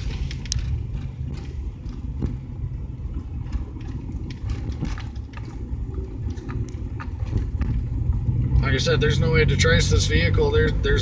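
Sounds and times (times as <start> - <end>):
light clicks and rattles: 0.0 - 2.4
car engine and road noise: 0.0 - 11.0.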